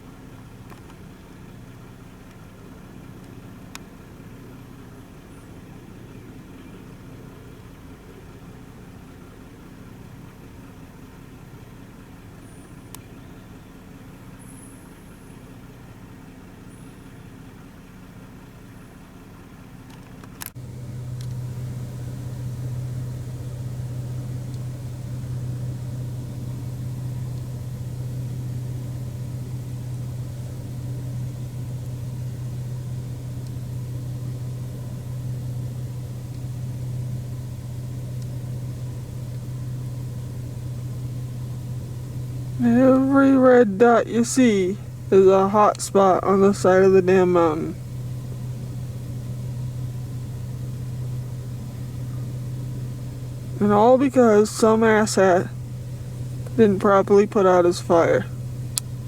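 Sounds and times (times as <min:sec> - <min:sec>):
car engine and road hum: 0:00.0 - 0:59.0
click: 0:00.7 - 0:01.0, 0:03.2 - 0:03.9, 0:12.9 - 0:13.1, 0:19.9 - 0:20.6, 0:21.2 - 0:21.5, 0:24.1 - 0:28.5, 0:33.3 - 0:34.6, 0:38.0 - 0:38.4, 0:56.3 - 0:56.6, 0:58.7 - 0:58.9.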